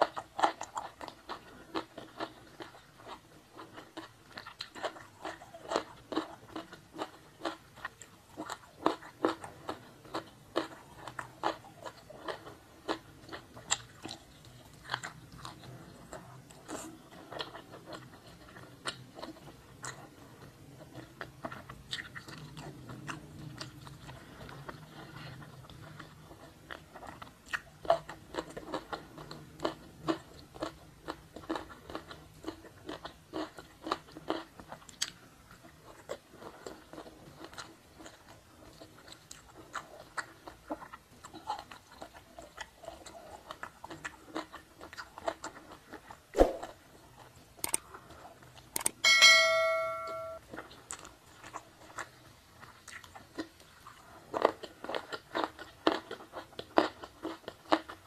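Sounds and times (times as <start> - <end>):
wet chewing with crunchy bites: 0.0 - 49.0, 50.4 - 58.0
ringing clink: 48.9 - 50.4.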